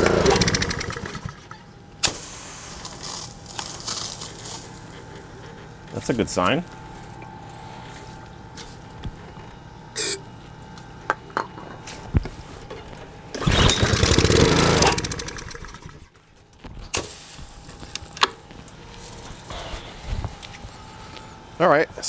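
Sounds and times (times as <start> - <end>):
small engine firing and running: 0.0 - 4.8, 13.3 - 16.1.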